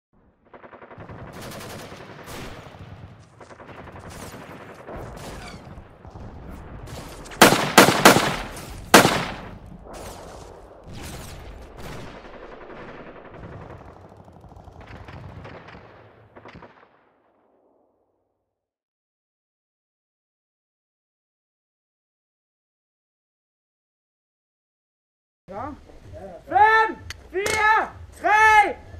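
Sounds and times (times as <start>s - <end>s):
automatic gunfire rattling: 7.4s - 9.5s
loud gunshots: 7.4s - 9.6s.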